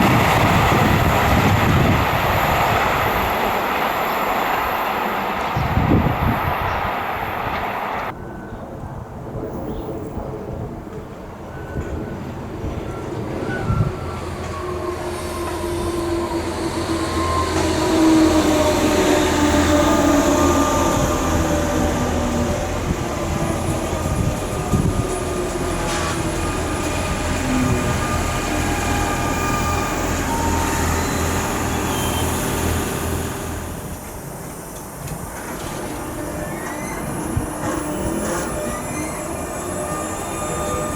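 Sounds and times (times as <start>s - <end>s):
whining tones sliding down: 13.3s - 40.9s
electric train running: 13.7s - 40.9s
wheel squeal: 23.3s - 40.9s.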